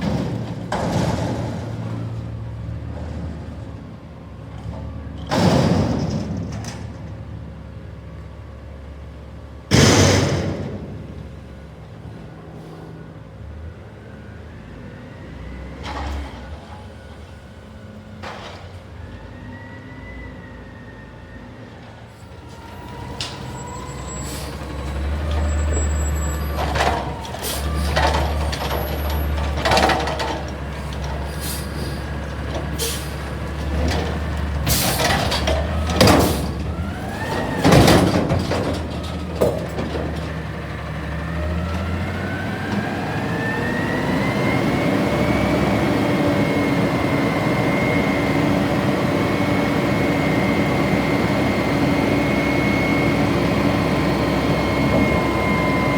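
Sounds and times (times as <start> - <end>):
garbage truck engine revving: 22.6 - 55.9.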